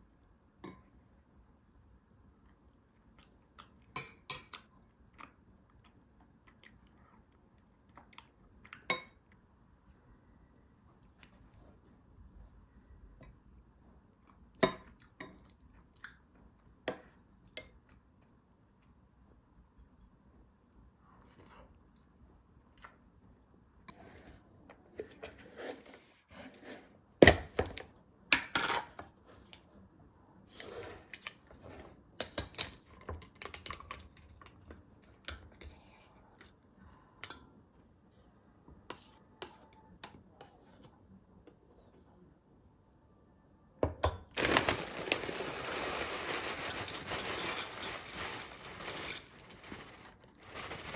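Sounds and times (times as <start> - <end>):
kitchen utensils and dishes clinking: 44.4 - 50.9.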